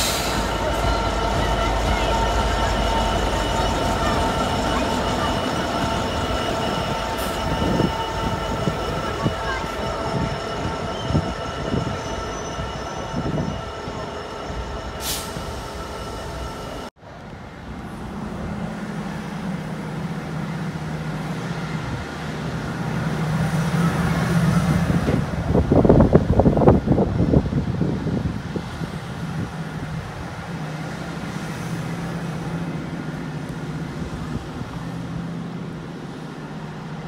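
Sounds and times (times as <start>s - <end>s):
wheel squeal: 0.0s - 16.8s
freight train rumbling past: 0.0s - 37.0s.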